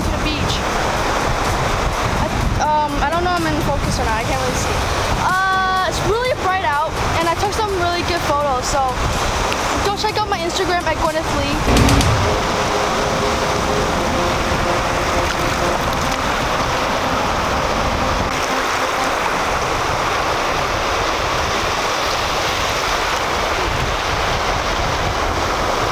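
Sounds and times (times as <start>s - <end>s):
wind rumbling on microphone: 19.4s - 25.9s.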